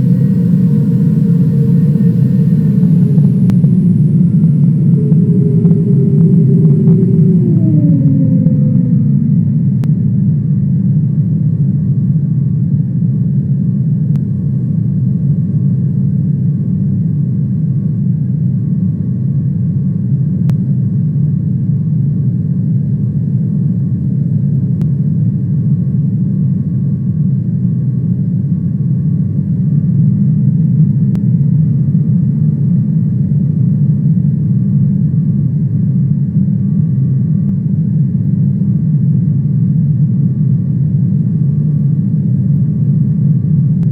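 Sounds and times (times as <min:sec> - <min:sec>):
faint steady whine: 0:00.0 - 0:10.8
jet engine rumble in cabin: 0:00.0 - 0:11.7.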